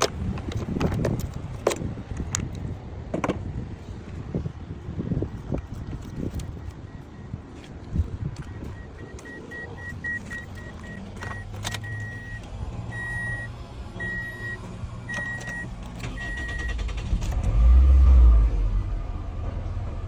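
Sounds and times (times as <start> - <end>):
engine cranking rumble: 0.0 - 2.8, 7.9 - 20.0
car warning chime beeping: 6.2 - 17.0.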